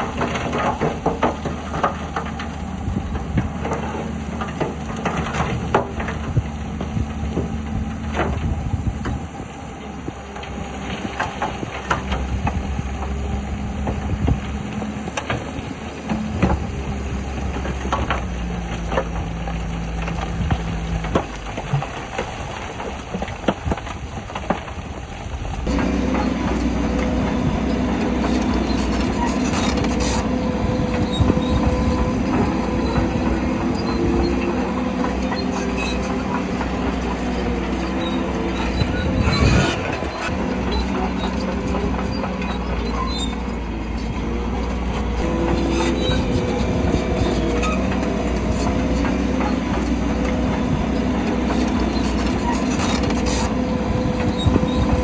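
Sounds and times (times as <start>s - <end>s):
bulldozer diesel engine: 0.0s - 55.0s
steel tracks clanking: 25.5s - 55.0s.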